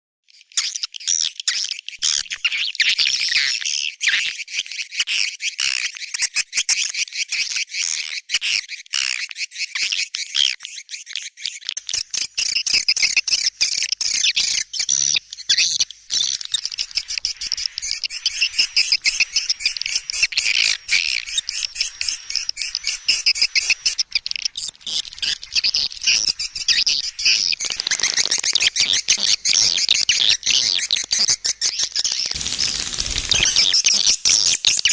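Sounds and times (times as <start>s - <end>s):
swiftlet chirps and twitters: 12.0s - 34.9s.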